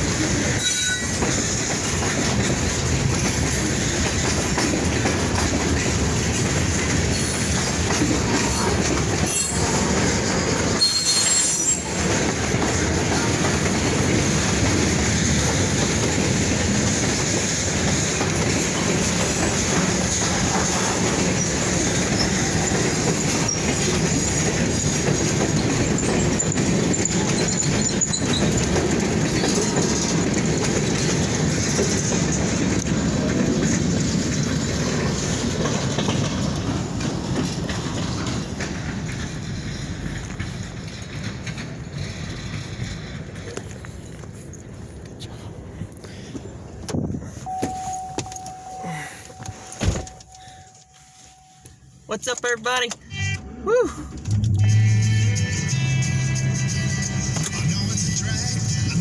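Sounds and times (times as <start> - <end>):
train wheels rumbling and clattering: 0.0 - 53.1, 53.7 - 59.0
faint high wheel squeal: 0.5 - 1.2, 10.8 - 12.0, 25.8 - 28.7, 47.4 - 51.9.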